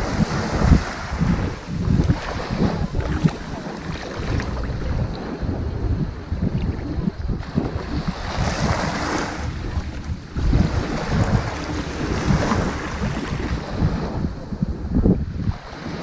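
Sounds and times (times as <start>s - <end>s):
ocean waves on sandy beach: 0.0s - 16.0s
wind buffeting microphone: 0.0s - 16.0s.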